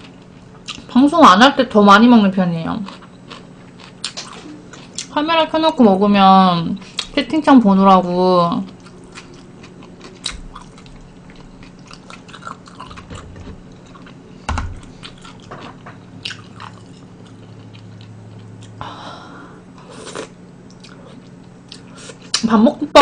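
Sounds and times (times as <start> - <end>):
close-up chewing: 8.7 - 18.8.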